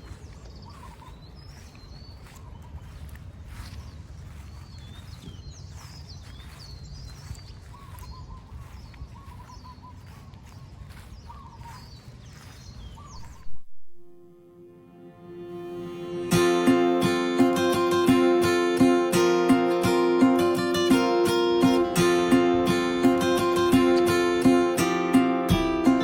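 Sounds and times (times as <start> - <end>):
birds chirping and trilling: 0.0 - 13.6, 14.2 - 26.0
plucked guitar music: 14.0 - 26.0.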